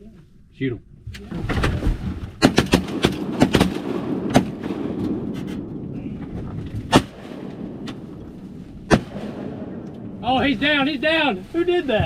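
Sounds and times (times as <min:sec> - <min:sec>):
shotgun blasts: 0:02.4 - 0:10.8.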